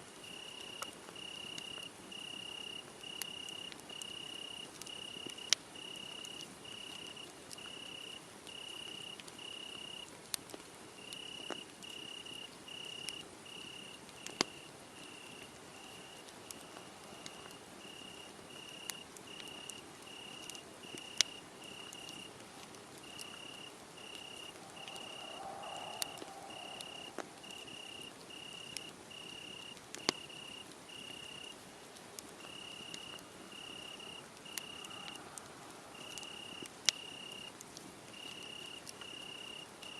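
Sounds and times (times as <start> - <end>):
wood fire hiss: 0.0 - 39.9
cricket chirping: 0.2 - 10.1, 11.0 - 31.6, 32.4 - 39.9
burning wood crackling and popping: 0.2 - 39.9.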